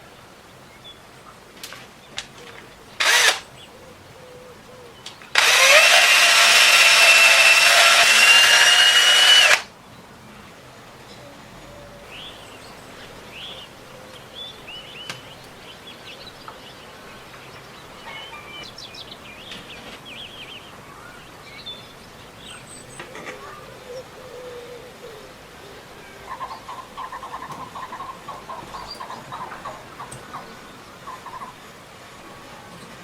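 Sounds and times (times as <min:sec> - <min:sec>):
power tool whining: 0:03.0 - 0:03.4, 0:05.3 - 0:09.7
birds chirping: 0:11.1 - 0:31.7.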